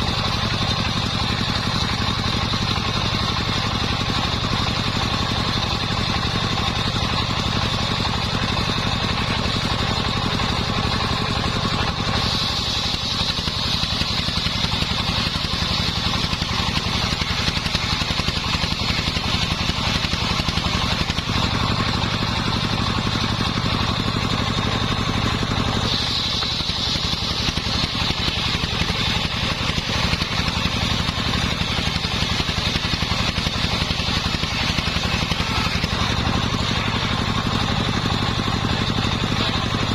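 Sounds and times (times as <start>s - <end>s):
engine-driven circular saw running: 0.0s - 39.9s
high hiss or whine: 12.1s - 20.0s, 24.8s - 31.0s.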